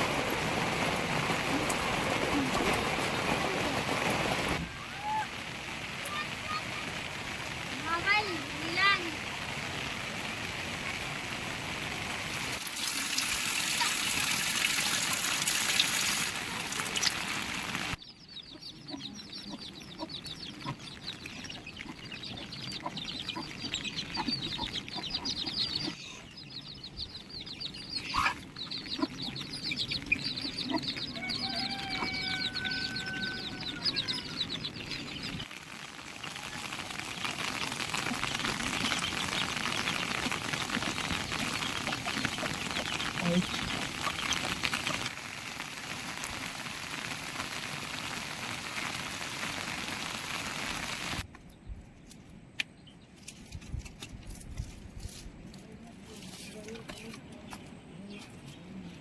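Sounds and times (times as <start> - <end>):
chicks chirping: 18.0 - 45.1
chickens clucking: 18.4 - 26.3, 27.7 - 35.4, 37.8 - 45.1.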